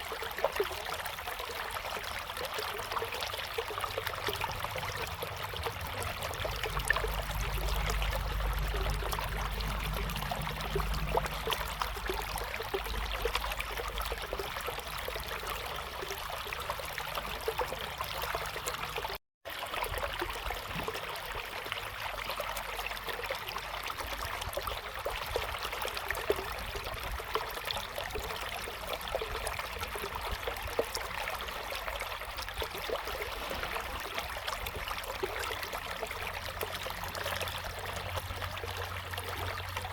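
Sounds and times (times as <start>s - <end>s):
river water flowing over stones: 0.0s - 39.9s
low rumble: 4.0s - 14.5s.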